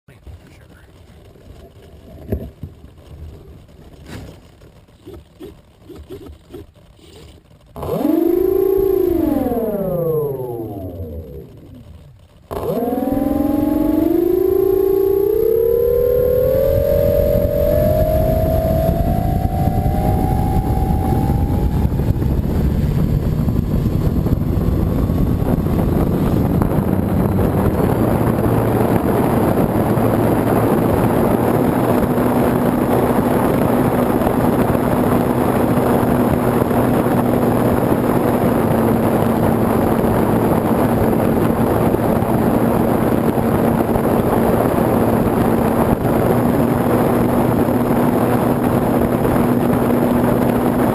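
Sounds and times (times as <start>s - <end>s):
propeller and wind rush: 0.1s - 50.9s
electric motor whine: 7.1s - 50.9s.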